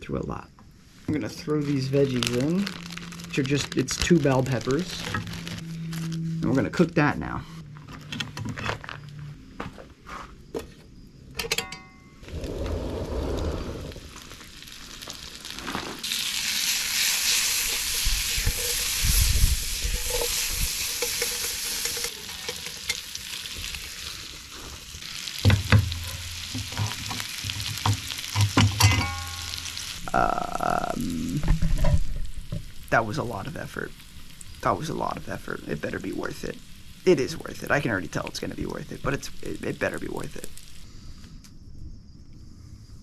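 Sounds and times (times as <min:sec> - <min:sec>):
peppers sizzling in a pan: 0:01.4 - 0:06.0, 0:13.8 - 0:41.1.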